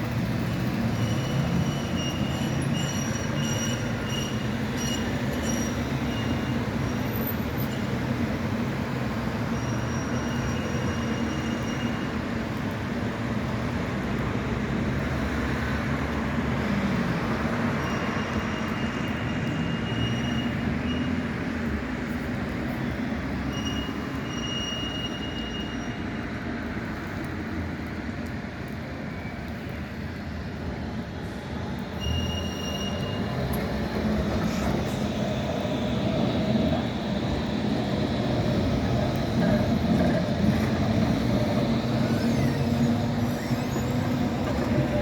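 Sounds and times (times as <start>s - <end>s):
tram wheels squealing: 0.0s - 13.1s, 17.2s - 21.6s, 22.8s - 26.4s, 31.7s - 45.0s
tram rumbling: 0.0s - 45.0s.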